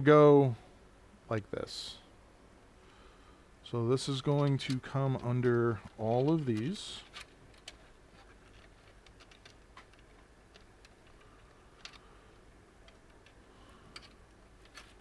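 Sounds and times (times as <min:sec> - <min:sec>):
faint clicks of plastic connectors: 0:04.2 - 0:15.0.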